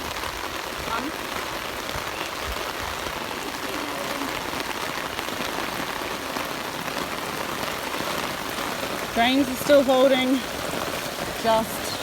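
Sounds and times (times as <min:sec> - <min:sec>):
water hissing: 0:08.2 - 0:12.0.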